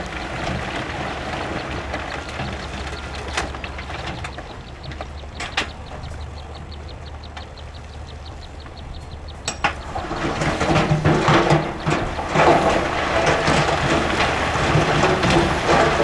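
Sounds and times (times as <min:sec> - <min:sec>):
diesel engine low rumble: 0:00.0 - 0:16.0
light fast ticking: 0:01.6 - 0:10.5
sharp metallic clanks: 0:09.4 - 0:16.0.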